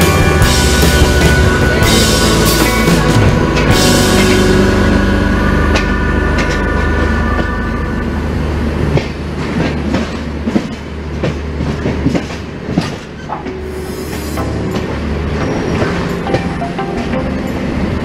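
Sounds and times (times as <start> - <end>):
train rumbling: 0.0 - 18.0
wheels clattering over rail joints: 8.8 - 13.6.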